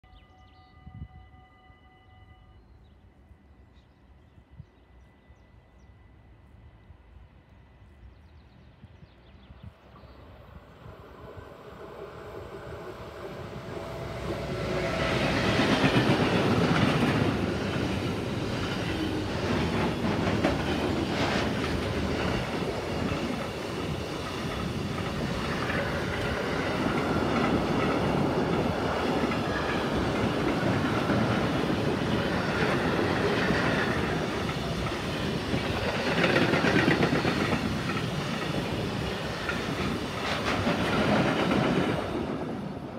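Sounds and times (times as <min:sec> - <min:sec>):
electric locomotive passing: 0:00.0 - 0:42.9
freight train wheels clattering: 0:14.6 - 0:42.6.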